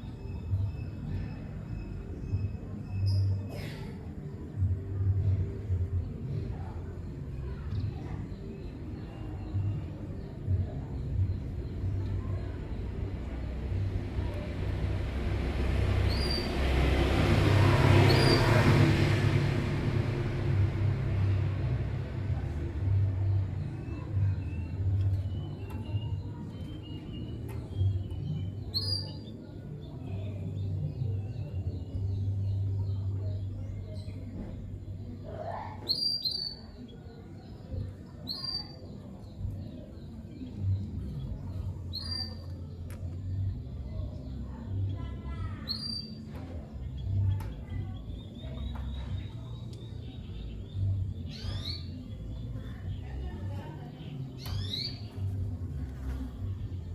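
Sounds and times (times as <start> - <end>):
motor vehicle passing: 13.0 - 25.0.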